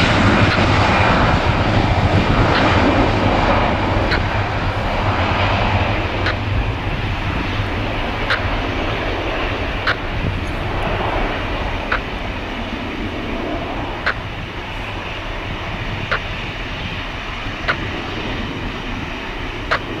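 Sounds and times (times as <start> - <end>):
jet engines rushing: 0.0 - 20.0
short sharp ticks: 19.7 - 20.0.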